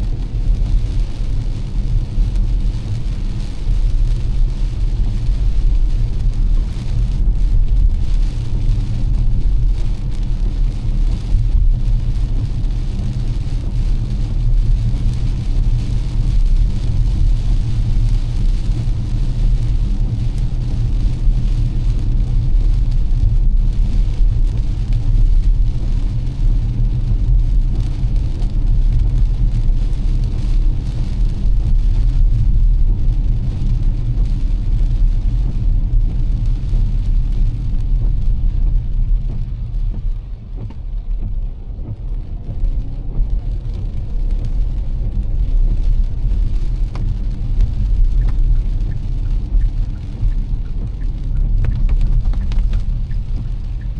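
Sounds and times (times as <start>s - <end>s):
car rumbling on wet road: 0.0s - 53.9s
rain and tyre spray hiss: 0.0s - 53.9s.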